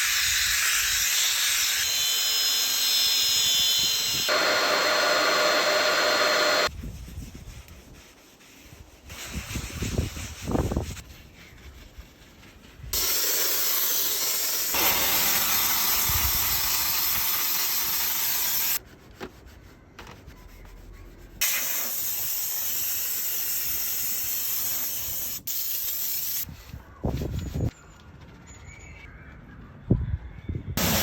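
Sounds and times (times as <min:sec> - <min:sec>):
cleaning jet hissing: 0:02.5 - 0:06.7, 0:13.0 - 0:18.8, 0:30.8 - 0:31.0.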